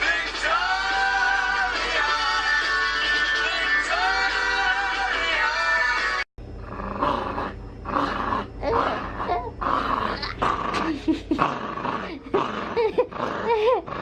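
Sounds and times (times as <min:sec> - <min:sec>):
background music: 0:00.0 - 0:06.2
dog growling in play: 0:06.6 - 0:14.0.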